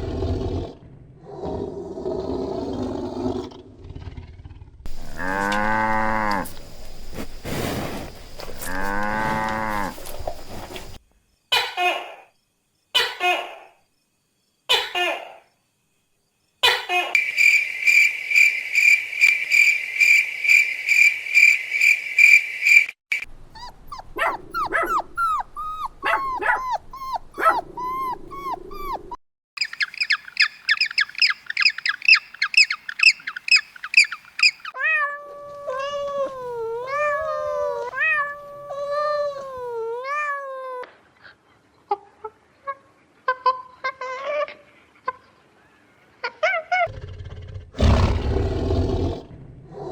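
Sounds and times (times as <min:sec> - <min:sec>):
long wavering animal calls: 0:04.9 - 0:07.2, 0:23.6 - 0:34.8
short squeaky animal calls: 0:23.6 - 0:29.0
fast high chirping: 0:23.6 - 0:34.7.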